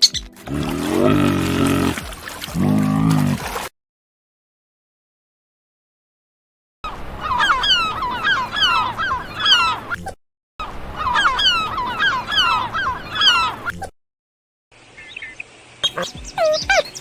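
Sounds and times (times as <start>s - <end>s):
geese honking: 7.2s - 10.0s, 10.9s - 13.7s.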